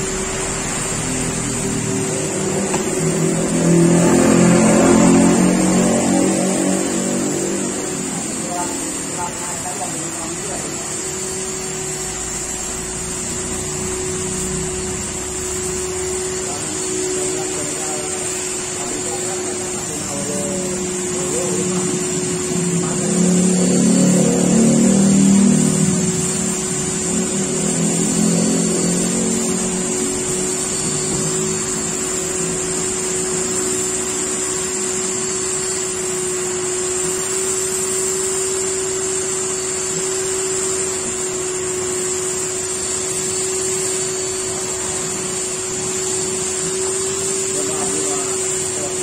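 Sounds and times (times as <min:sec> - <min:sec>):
electric motor humming and hissing: 0:00.0 - 0:49.0.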